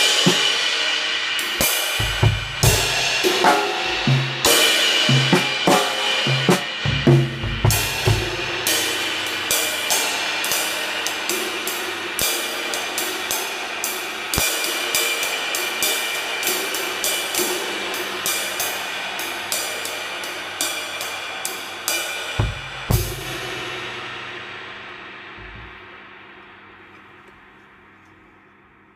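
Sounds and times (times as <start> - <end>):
cymbal pattern: 0.0 - 28.1
low drum hits: 22.4 - 23.3, 25.4 - 25.9.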